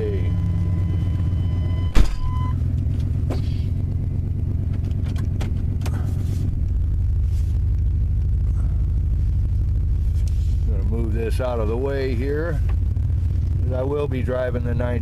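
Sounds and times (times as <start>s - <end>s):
high warning tone: 0.0s - 2.9s
car engine idling: 0.0s - 15.0s
car door slamming: 1.8s - 2.5s.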